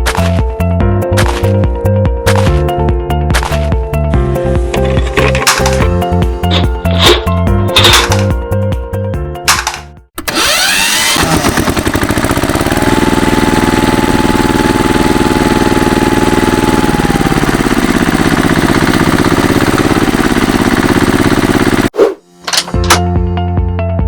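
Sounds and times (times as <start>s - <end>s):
engine running: 4.5s - 8.4s, 9.5s - 21.9s.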